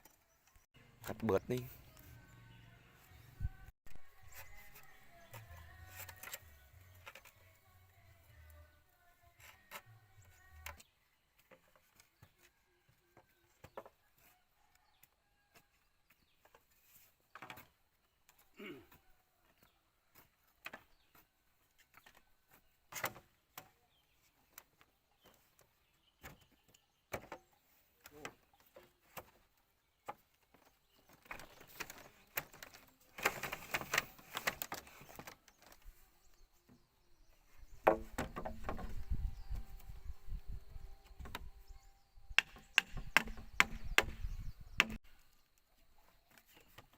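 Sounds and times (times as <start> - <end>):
rough scraping on bamboo: 30.6 - 36.2.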